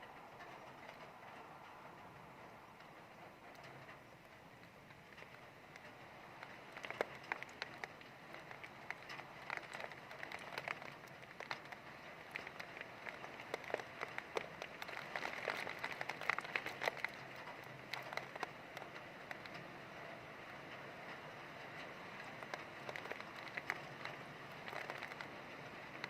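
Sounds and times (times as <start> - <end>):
raindrop hits close by: 0.0 - 26.0.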